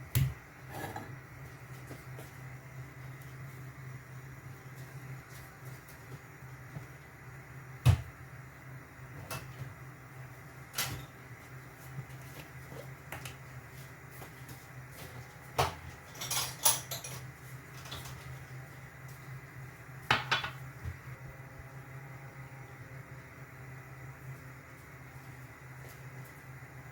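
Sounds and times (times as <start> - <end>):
steady low hum: 0.0 - 26.9
kitchen utensils and dishes clinking: 15.8 - 18.2.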